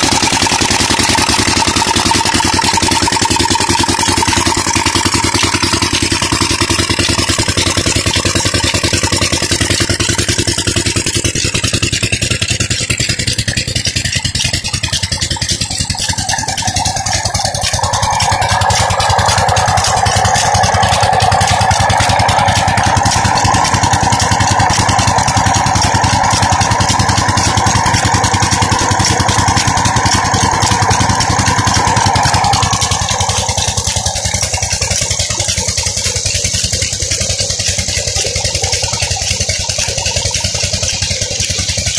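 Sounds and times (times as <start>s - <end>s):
diesel engine clattering: 0.0s - 41.9s
steady higher tone: 15.0s - 40.8s.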